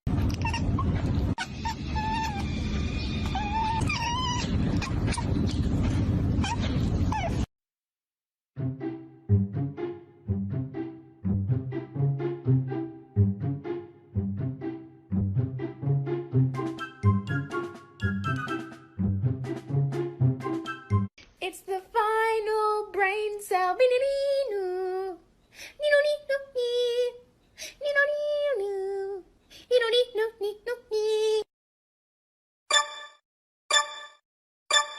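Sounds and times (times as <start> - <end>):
cat meowing: 0.3 - 2.5, 3.2 - 5.4.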